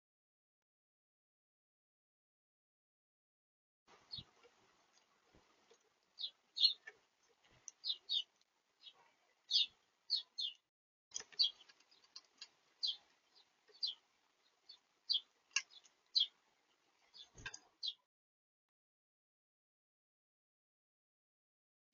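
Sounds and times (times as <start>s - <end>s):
small birds chirping: 3.9s - 18.1s.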